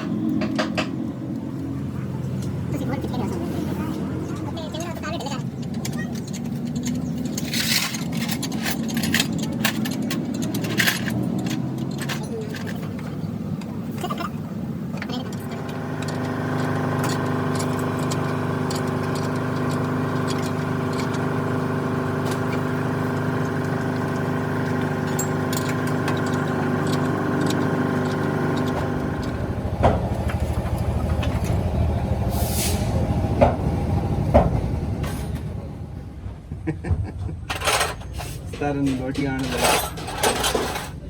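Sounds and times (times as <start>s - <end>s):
machine humming: 12.8s - 36.8s.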